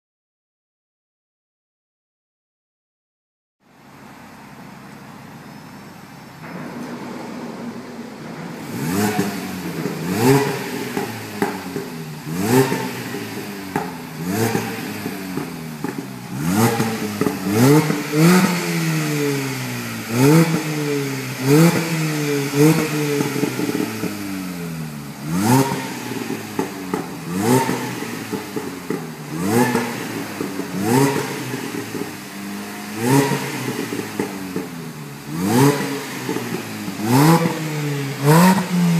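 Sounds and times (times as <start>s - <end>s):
car engine idling and revving: 3.6s - 38.9s
exhaust pops and cracks: 6.4s - 19.4s, 25.5s - 32.4s.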